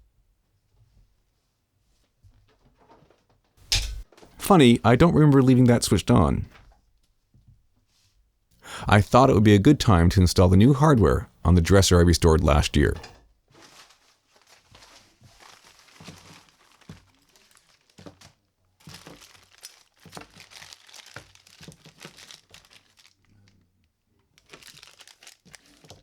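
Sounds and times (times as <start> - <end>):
packaging crinkling and tearing: 13.6 - 23.3, 24.4 - 26.0.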